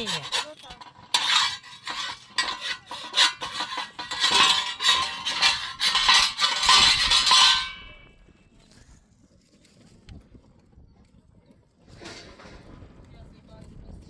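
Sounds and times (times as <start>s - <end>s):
scraping and clinking strokes: 0.0s - 8.9s.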